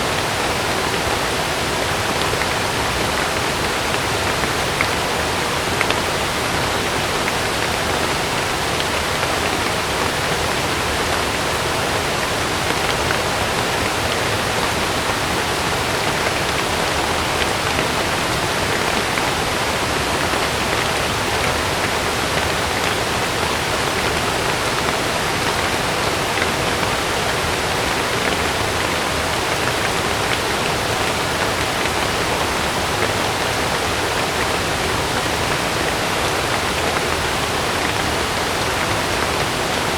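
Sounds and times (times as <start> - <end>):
heavy rain on a tent: 0.0 - 39.9.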